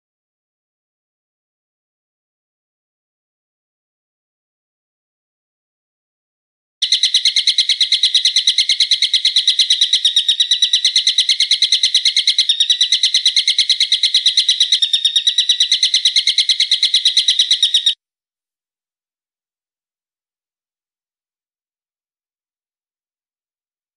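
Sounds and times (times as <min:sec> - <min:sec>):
bird calling sharp high notes: 0:06.8 - 0:18.0.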